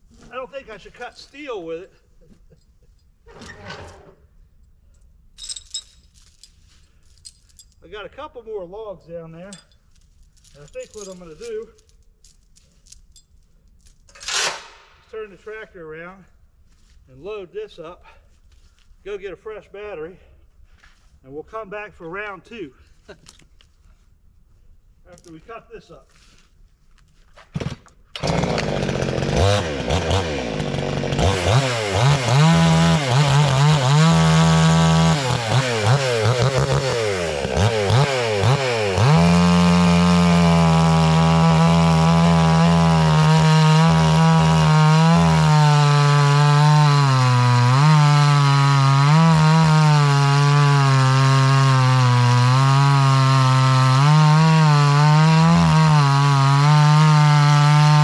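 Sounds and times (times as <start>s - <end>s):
chainsaw revving and cutting log: 14.2s - 15.0s, 28.2s - 58.0s.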